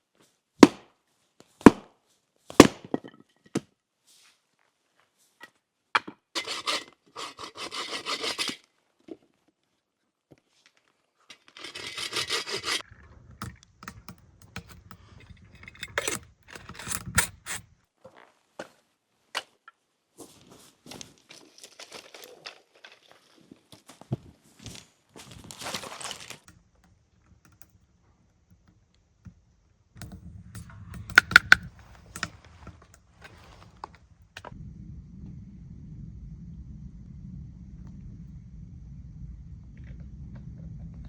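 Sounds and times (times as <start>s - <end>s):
repeated scraping strokes: 6.4s - 8.6s, 11.5s - 17.7s, 30.0s - 33.9s.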